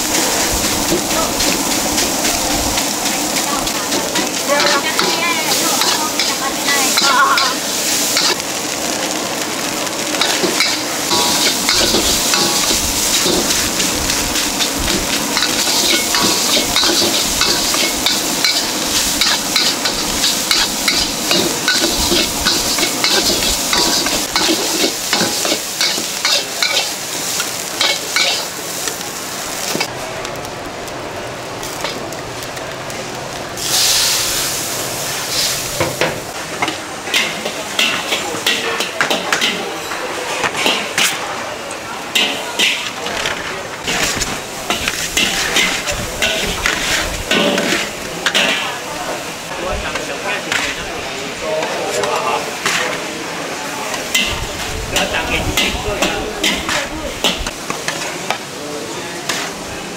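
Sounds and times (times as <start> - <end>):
hot oil sizzling: 0.0 - 59.9
stirring scrapes in a pan: 10.2 - 28.5, 43.8 - 48.7.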